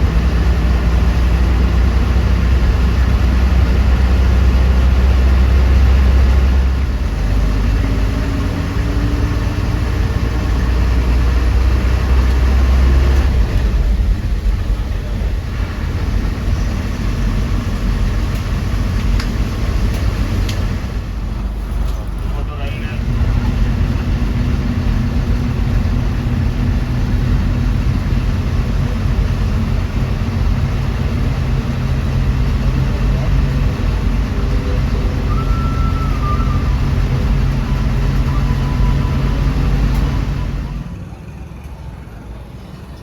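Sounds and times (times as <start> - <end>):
bus engine drone: 0.0 - 43.0
road noise: 0.0 - 43.0.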